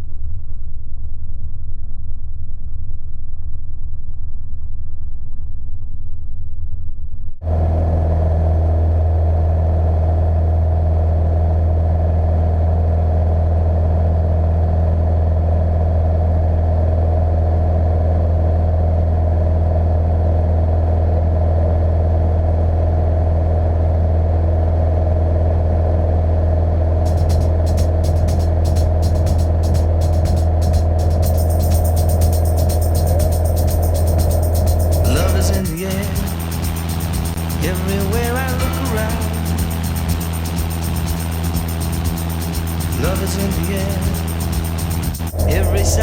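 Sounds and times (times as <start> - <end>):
aircraft piston engine drone: 27.1 - 46.0.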